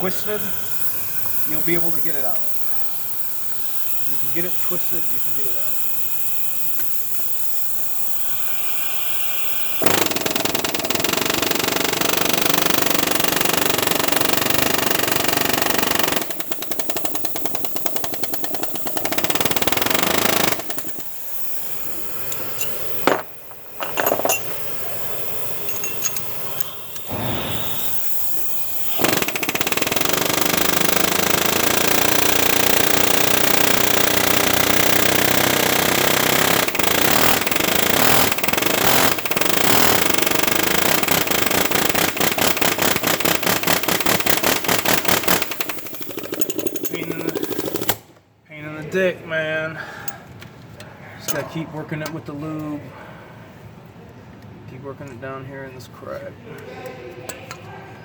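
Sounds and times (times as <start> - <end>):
steady air hiss: 0.0 - 9.9, 20.6 - 29.3
pneumatic air hammer rattling: 0.0 - 48.2.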